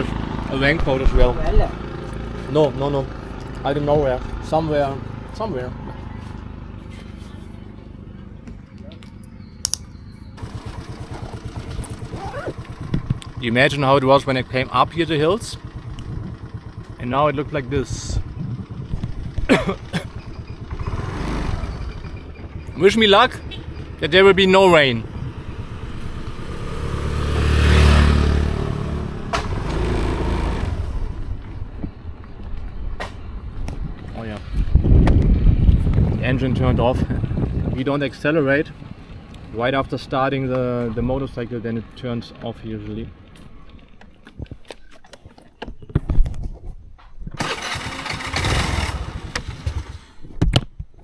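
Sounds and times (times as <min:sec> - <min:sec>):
motorcycle engine revving: 0:00.0 - 0:31.8, 0:47.4 - 0:50.2
sharp click: 0:09.0 - 0:09.9.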